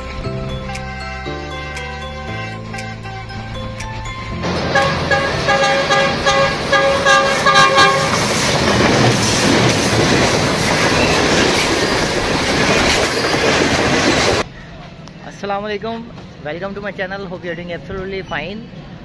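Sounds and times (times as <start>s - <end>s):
train running on rails: 3.1s - 15.2s
train horn: 4.5s - 8.5s.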